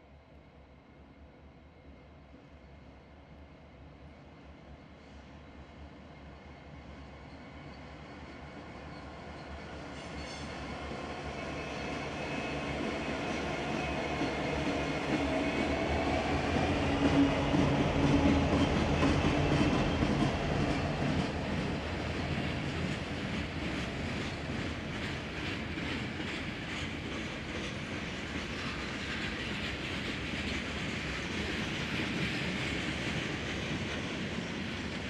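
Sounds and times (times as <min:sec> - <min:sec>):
diesel locomotive engines droning: 0:05.2 - 0:35.0
train wheels clicking over rail joints: 0:12.5 - 0:35.0.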